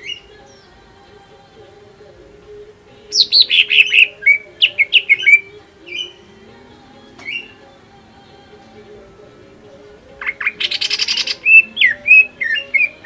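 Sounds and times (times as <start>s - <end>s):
bird singing sharp falling notes: 7.1s - 7.6s, 10.2s - 13.0s.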